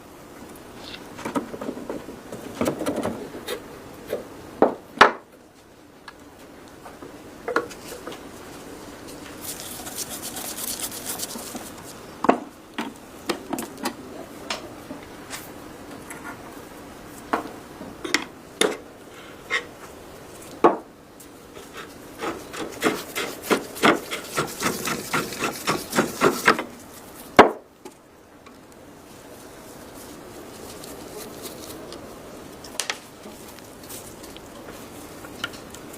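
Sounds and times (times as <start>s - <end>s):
rubbing and scraping on metal: 9.4s - 12.0s, 21.5s - 27.2s.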